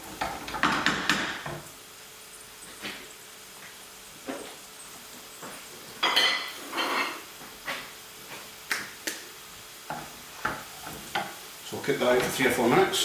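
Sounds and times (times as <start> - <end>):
pans and utensils clattering: 6.0 - 7.3.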